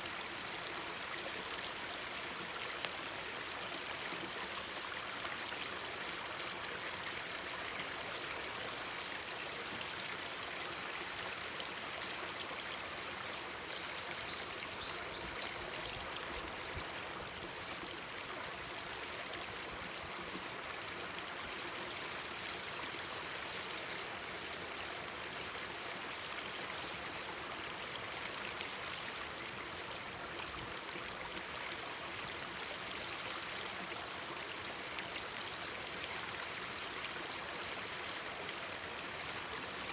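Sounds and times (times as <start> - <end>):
faint campfire crackling: 0.4 - 6.2.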